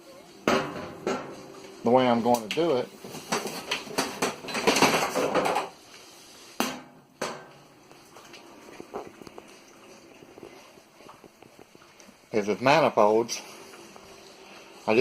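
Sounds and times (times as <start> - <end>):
hard objects clattering: 3.0 - 5.8.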